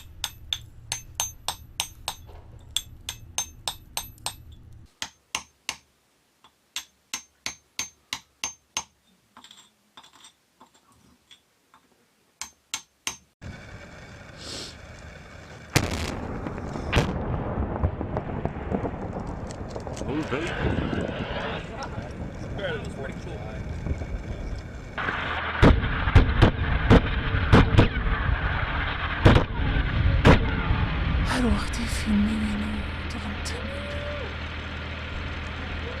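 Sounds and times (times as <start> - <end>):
hammer and chisel on stone: 0.0 - 5.9, 6.8 - 11.4, 12.4 - 13.4.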